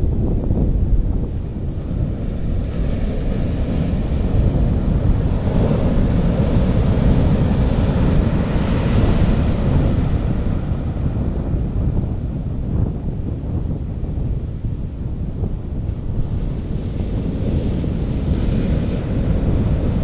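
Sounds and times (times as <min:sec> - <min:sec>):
wind rumble on microphone: 0:00.0 - 0:20.0
sea waves washing on beach: 0:01.4 - 0:12.5, 0:15.9 - 0:20.0.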